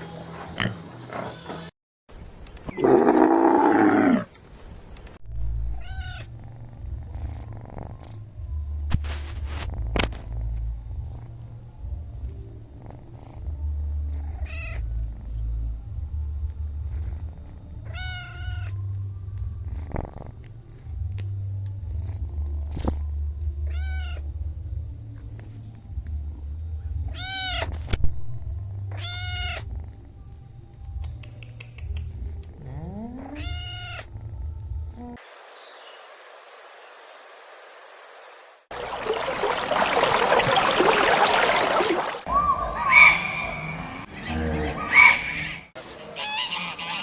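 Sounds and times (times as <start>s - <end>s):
cat meowing: 5.7s - 6.3s, 14.3s - 14.8s, 17.8s - 18.8s, 23.6s - 24.2s, 27.1s - 27.7s, 28.9s - 29.7s, 33.2s - 34.1s
cat purring: 6.2s - 8.8s, 9.5s - 23.2s, 29.4s - 31.0s.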